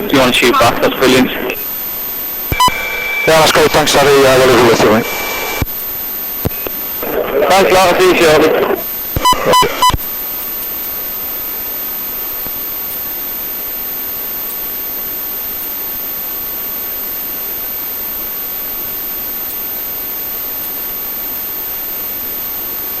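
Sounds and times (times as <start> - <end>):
radio hiss: 0.0 - 15.4
thin high whine: 0.0 - 16.8.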